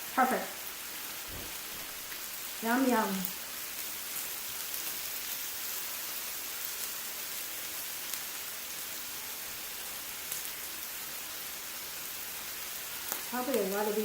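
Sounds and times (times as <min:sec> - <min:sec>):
meat sizzling on a grill: 0:00.0 - 0:14.0.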